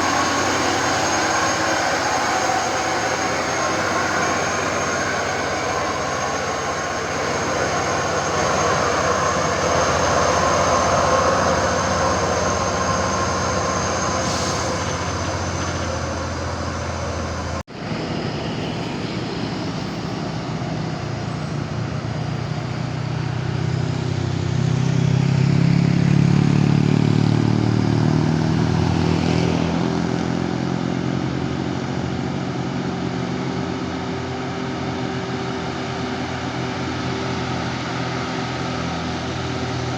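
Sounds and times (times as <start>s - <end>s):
truck engine revving deeper: 0.0s - 18.7s
truck engines running: 0.0s - 39.9s.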